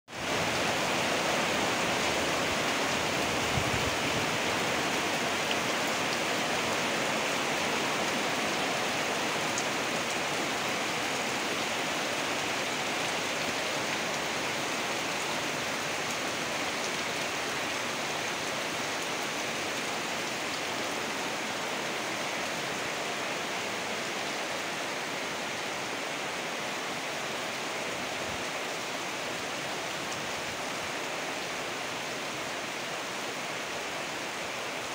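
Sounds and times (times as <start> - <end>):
heavy rain pouring: 0.1 - 34.9.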